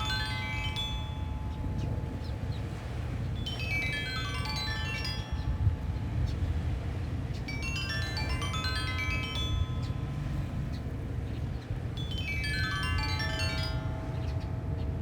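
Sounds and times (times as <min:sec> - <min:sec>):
low rumble of wind: 0:00.0 - 0:15.0
stone xylophone runs: 0:03.4 - 0:06.0, 0:07.5 - 0:10.8, 0:12.0 - 0:15.0.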